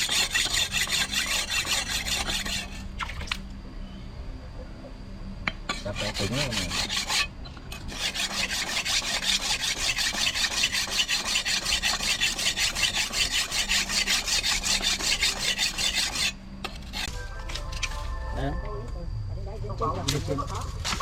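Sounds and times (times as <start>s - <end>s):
hand filing metal: 0.0s - 2.8s, 5.7s - 17.1s.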